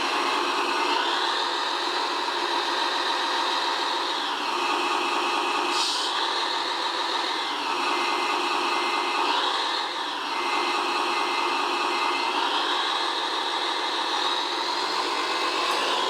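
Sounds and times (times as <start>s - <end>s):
small electric motors whining: 12.2s - 16.0s.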